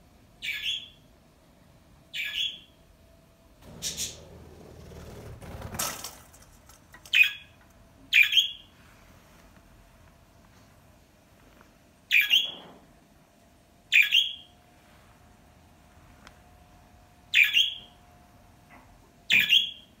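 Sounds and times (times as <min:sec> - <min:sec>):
faint steady hum: 0:00.0 - 0:20.0
bird squawking: 0:00.4 - 0:01.0, 0:02.1 - 0:02.7, 0:03.7 - 0:04.3, 0:07.1 - 0:07.5, 0:08.1 - 0:08.6, 0:13.9 - 0:14.5, 0:17.3 - 0:17.9.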